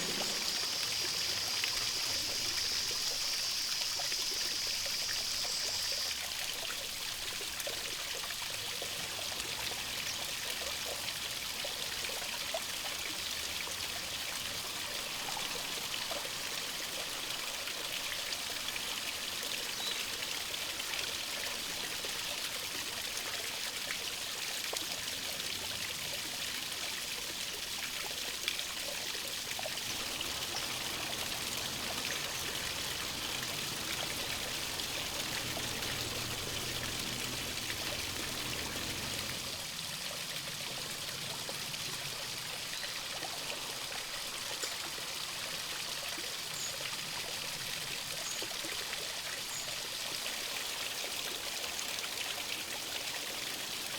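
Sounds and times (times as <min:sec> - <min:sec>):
mountain stream rushing: 0:00.0 - 0:05.8, 0:11.9 - 0:23.2, 0:27.4 - 0:44.8.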